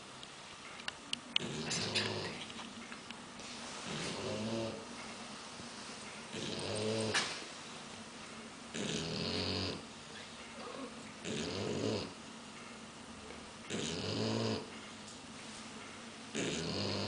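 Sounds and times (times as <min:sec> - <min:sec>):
dog snoring: 0:01.4 - 0:02.4, 0:03.8 - 0:04.8, 0:06.3 - 0:07.4, 0:08.7 - 0:09.9, 0:10.6 - 0:12.2, 0:13.7 - 0:14.7, 0:16.3 - 0:17.0.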